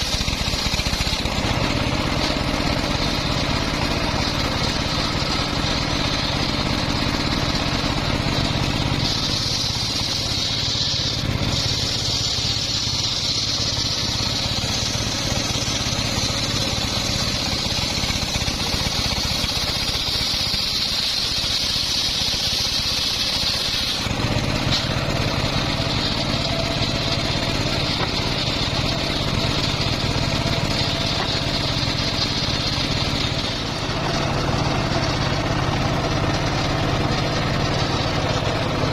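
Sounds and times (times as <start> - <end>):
engine-driven circular saw running: 0.0 - 38.9
saw blade hissing through log: 0.0 - 38.9.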